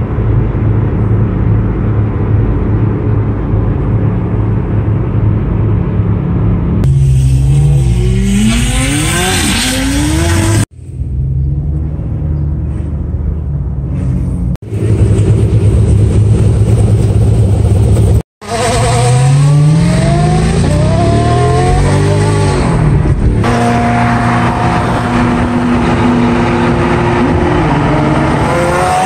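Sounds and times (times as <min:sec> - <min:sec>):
sports car engines revving: 0:06.5 - 0:12.5, 0:13.7 - 0:29.0.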